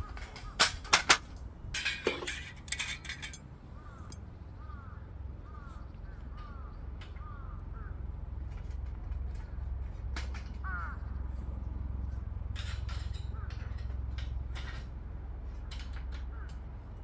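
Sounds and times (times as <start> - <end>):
metal plates clinking: 0.1 - 3.4
bird calling: 3.6 - 8.0.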